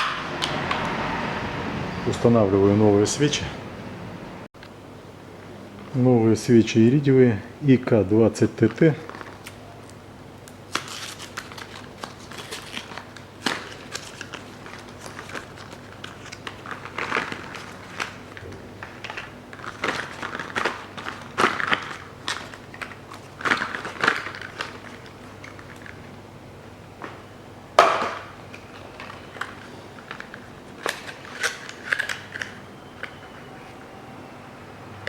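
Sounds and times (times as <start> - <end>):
packaging crinkling: 8.6 - 26.1, 28.4 - 33.2.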